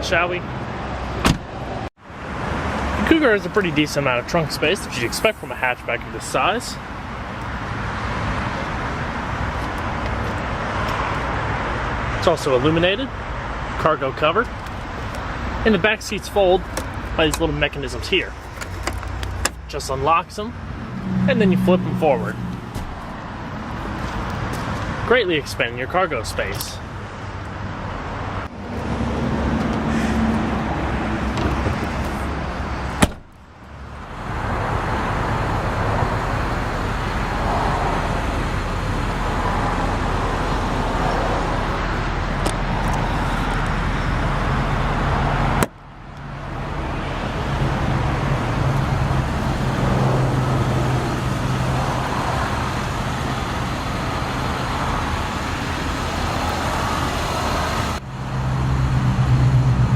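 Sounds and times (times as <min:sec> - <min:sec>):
road traffic noise: 0:00.0 - 0:59.9
low engine hum: 0:26.8 - 0:59.9.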